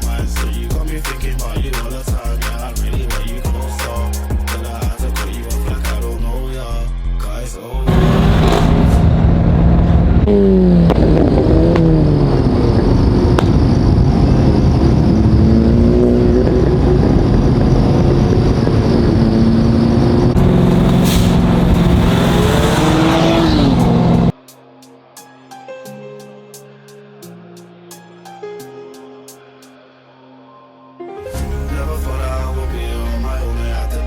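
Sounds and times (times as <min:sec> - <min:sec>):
car engine revving on launch limiter: 0:07.9 - 0:24.3
exhaust crackling: 0:07.9 - 0:24.3.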